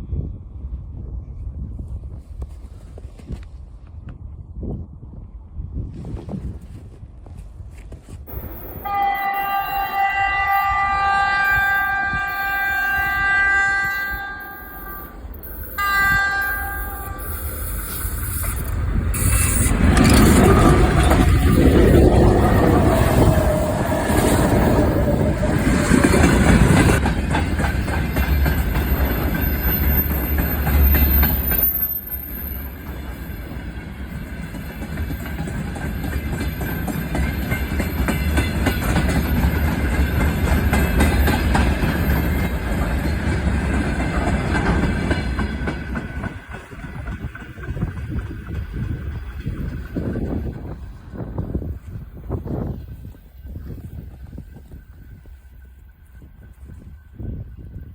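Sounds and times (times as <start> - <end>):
train running past on rails: 8.3 - 57.9
train horn: 8.8 - 15.2, 15.8 - 17.5.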